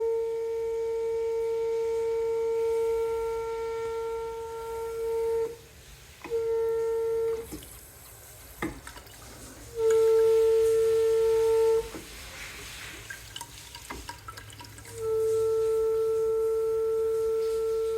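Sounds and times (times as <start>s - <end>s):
water pipes whining: 0.0s - 17.9s.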